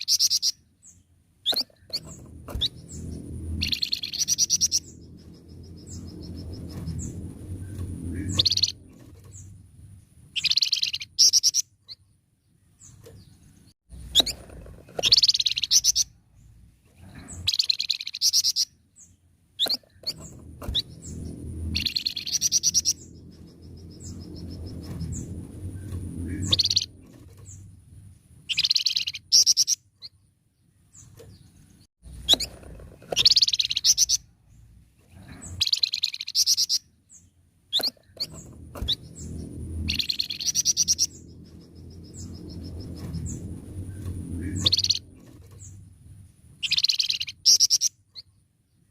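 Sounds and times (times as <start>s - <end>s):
songbird chattering song: 0.0s - 9.6s, 10.3s - 16.6s, 17.2s - 34.7s, 35.3s - 45.9s, 46.6s - 48.9s
low rumble: 1.8s - 10.5s, 19.8s - 28.5s, 38.0s - 46.7s.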